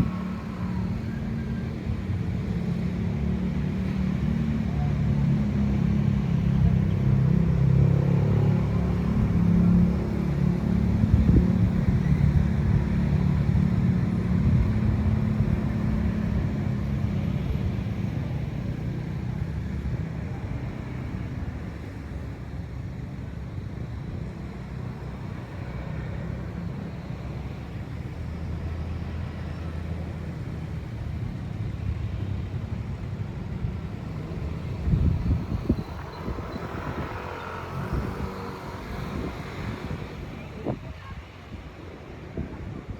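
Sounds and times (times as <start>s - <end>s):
wind blowing: 31.0s - 42.9s.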